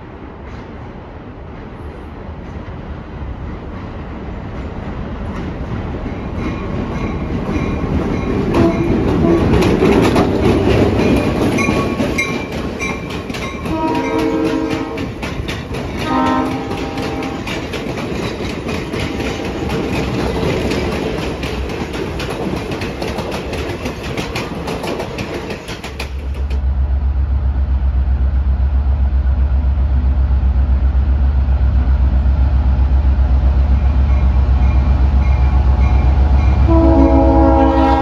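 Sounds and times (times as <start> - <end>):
wheels clicking over rail joints: 5.2 - 26.6
diesel locomotive engine running: 7.2 - 38.0
train horn blasts: 8.6 - 9.6, 13.6 - 15.2, 16.0 - 17.6, 36.6 - 38.0.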